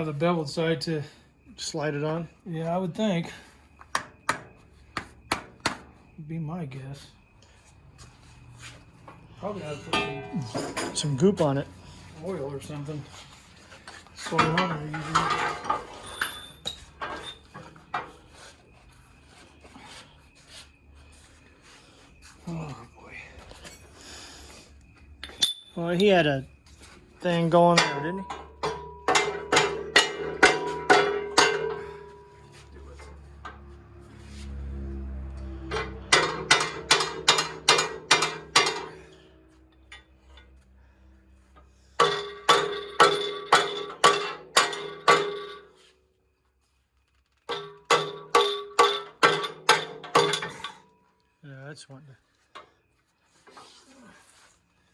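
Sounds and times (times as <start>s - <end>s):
hammer striking steel: 9.9s - 11.1s, 27.8s - 32.2s
metal parts clinking and knocking: 9.9s - 11.2s, 14.2s - 18.2s, 25.2s - 26.2s, 27.4s - 32.3s, 35.7s - 39.1s, 42.0s - 45.7s, 47.3s - 50.9s.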